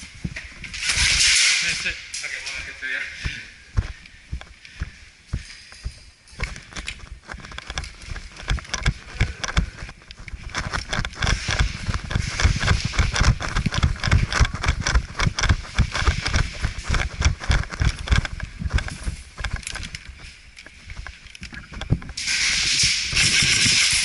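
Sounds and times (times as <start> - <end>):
footsteps running over ground: 3.2 - 22.2
gear rattling: 3.2 - 24.0.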